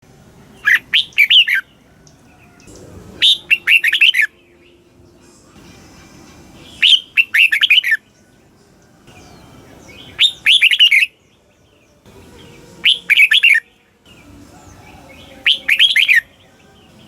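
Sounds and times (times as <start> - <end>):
bird singing bubbling notes: 0.6 - 5.0, 6.7 - 8.0, 9.9 - 11.2, 15.1 - 16.3.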